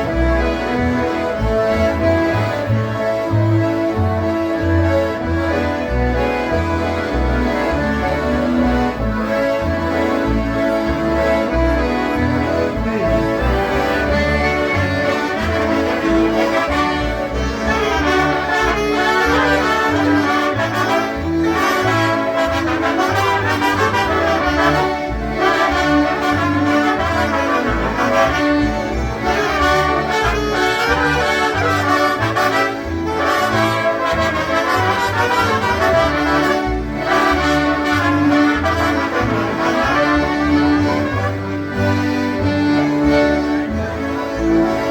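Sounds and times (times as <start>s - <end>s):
concertina band playing polka: 0.0s - 44.9s.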